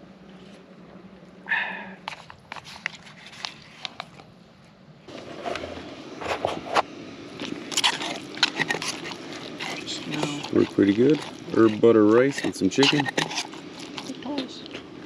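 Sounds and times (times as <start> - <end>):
cookware clicking and scraping: 7.8 - 14.1.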